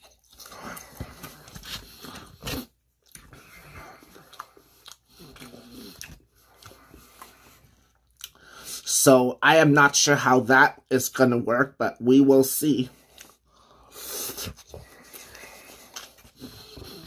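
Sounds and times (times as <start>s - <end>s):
person chewing noodles: 0.0s - 8.9s, 12.9s - 17.0s.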